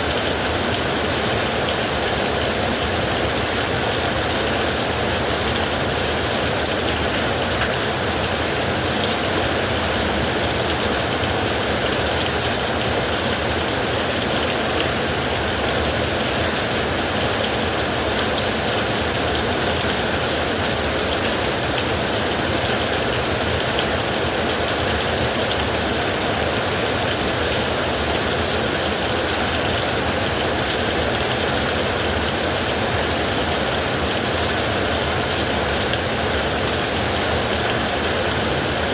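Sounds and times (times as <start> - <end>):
heavy rain on a roof: 0.0 - 38.9.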